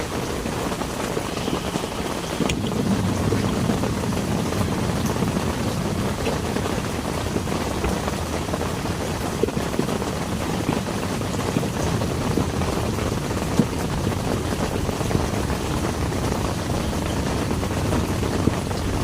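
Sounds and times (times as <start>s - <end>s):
heavy rain falling: 0.0s - 19.0s
sharp raindrop hits: 0.0s - 19.0s.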